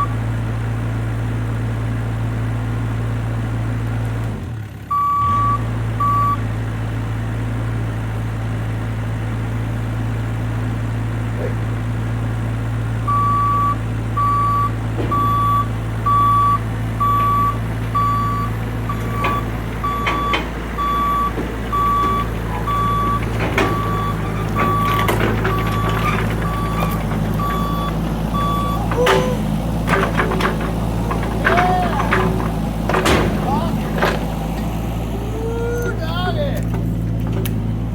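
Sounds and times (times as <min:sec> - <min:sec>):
diesel engine running: 0:00.0 - 0:37.9
travel alarm beeping: 0:04.9 - 0:06.4, 0:13.1 - 0:29.4
knocks and clanks: 0:14.7 - 0:35.2, 0:36.6 - 0:37.9.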